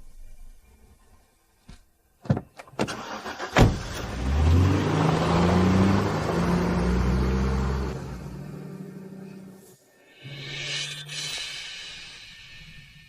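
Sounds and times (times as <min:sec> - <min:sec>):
truck engine starting and revving: 0:02.9 - 0:09.6.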